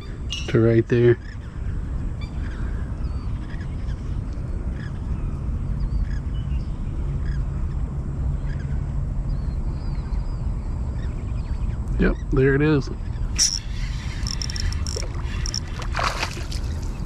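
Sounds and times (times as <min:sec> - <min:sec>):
faint bird chirps: 0:11.0 - 0:15.8.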